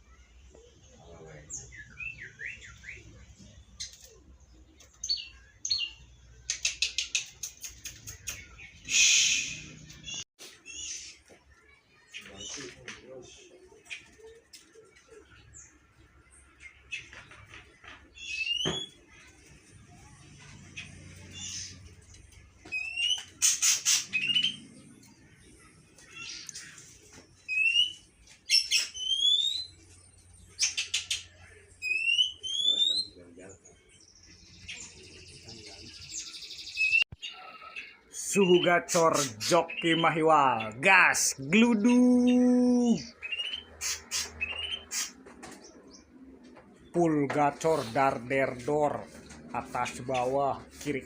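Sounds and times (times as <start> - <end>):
songbirds chirping: 0.0 - 51.0
songbird whistles and chattering: 4.8 - 11.2, 18.1 - 19.1, 22.6 - 24.8, 27.4 - 33.2, 36.0 - 45.2.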